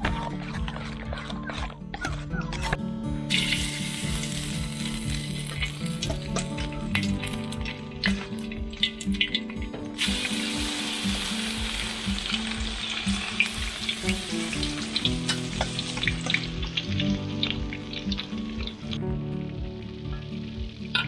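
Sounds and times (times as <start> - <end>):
low background music: 0.0 - 21.0
fish frying in hot oil: 3.3 - 19.0.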